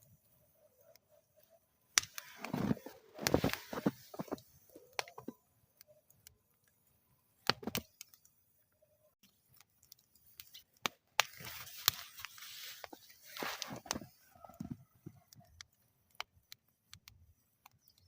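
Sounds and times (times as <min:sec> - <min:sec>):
wood fire crackling: 0:00.0 - 0:18.0
sharp pops from fire: 0:01.9 - 0:06.4, 0:07.4 - 0:08.3, 0:09.2 - 0:18.0.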